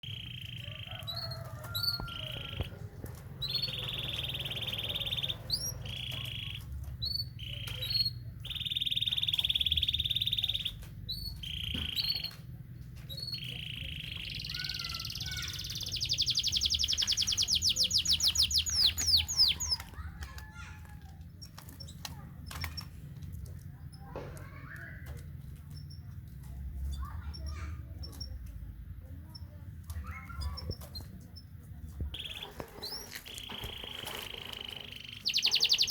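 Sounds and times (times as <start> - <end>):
scattered bird chirps: 0.0 - 2.8, 3.4 - 12.4, 13.0 - 20.6, 32.1 - 35.9
canary singing rolling trills: 0.0 - 28.4, 29.0 - 35.9.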